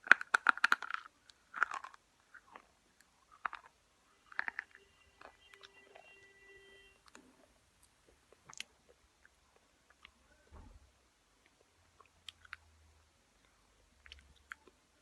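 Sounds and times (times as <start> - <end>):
chewing clicks: 0.0 - 3.7, 11.4 - 12.7, 13.4 - 14.8.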